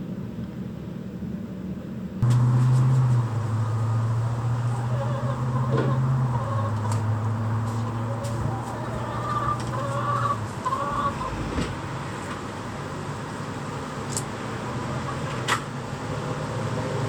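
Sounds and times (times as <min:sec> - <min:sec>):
steady low hum: 0:00.2 - 0:14.1
chickens clucking: 0:02.3 - 0:12.3, 0:14.8 - 0:15.7.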